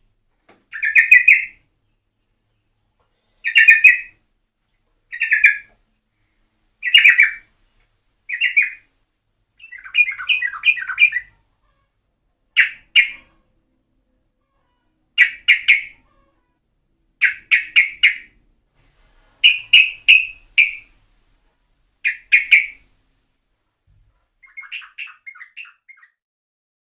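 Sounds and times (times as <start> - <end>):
bird calling in quick bursts: 0.7 - 1.6, 3.4 - 4.1, 5.1 - 5.7, 6.8 - 7.5, 8.3 - 8.9, 9.6 - 11.4, 12.6 - 13.4, 17.2 - 18.3, 19.4 - 21.0, 22.0 - 22.8, 24.4 - 26.2
soft bird chattering: 0.7 - 1.6, 3.4 - 4.1, 5.1 - 5.7, 6.8 - 7.5, 8.3 - 8.9, 9.6 - 11.8, 12.6 - 13.4, 14.7 - 16.3, 17.2 - 18.4, 19.4 - 20.9, 22.0 - 22.8, 24.4 - 26.2.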